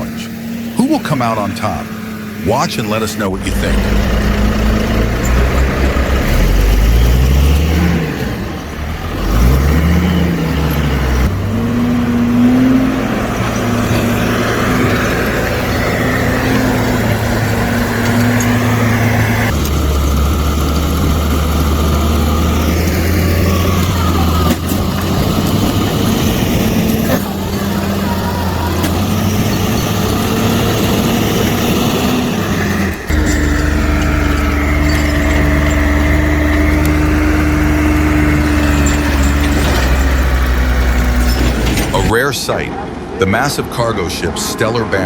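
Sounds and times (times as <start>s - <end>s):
diesel engine revving: 0.0s - 43.5s.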